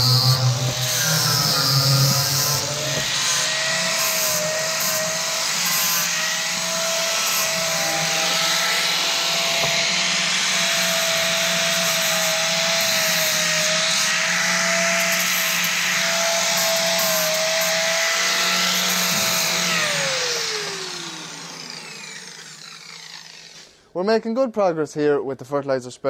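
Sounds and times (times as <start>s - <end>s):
angle grinder grinding steel: 0.0s - 23.8s.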